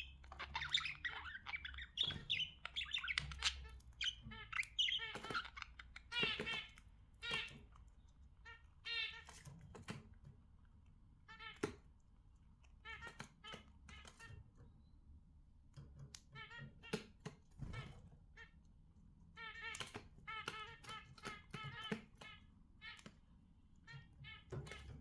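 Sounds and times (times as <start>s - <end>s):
budgerigars chirping and warbling: 0.0s - 9.9s, 11.2s - 11.8s, 12.6s - 14.6s, 16.2s - 18.6s, 19.3s - 23.2s, 23.8s - 25.0s.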